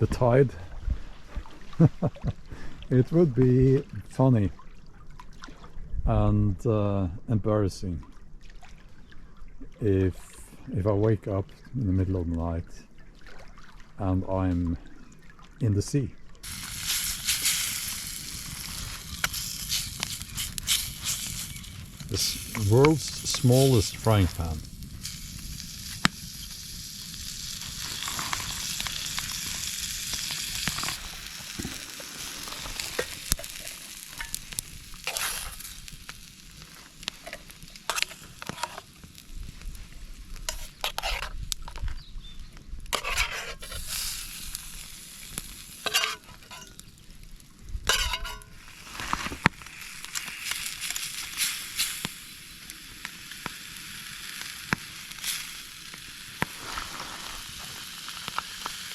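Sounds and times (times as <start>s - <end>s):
steak sizzling in frying pan: 16.4s - 41.7s, 42.4s - 47.2s, 47.8s - 58.9s
utensil knocking and scraping: 37.3s - 38.8s, 40.5s - 41.8s, 43.0s - 43.9s.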